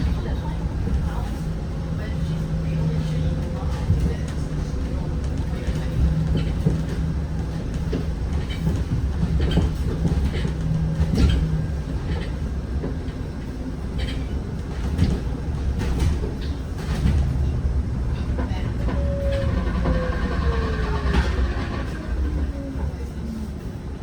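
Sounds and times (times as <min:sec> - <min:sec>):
bus engine and road rumble: 0:00.0 - 0:24.0
body rattles and knocks: 0:05.2 - 0:13.2, 0:13.9 - 0:19.0.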